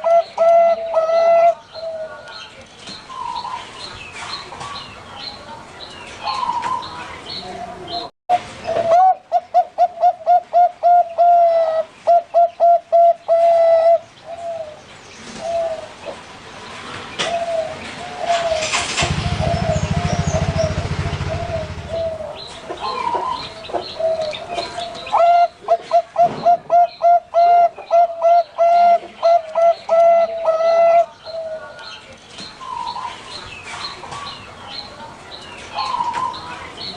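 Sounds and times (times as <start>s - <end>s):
dove cooing: 0.0s - 2.5s, 6.2s - 16.2s, 17.2s - 32.0s.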